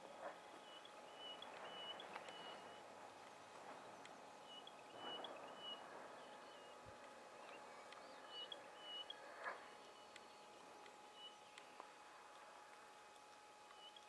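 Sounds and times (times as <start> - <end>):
faint high bird chirps: 0.6 - 2.9.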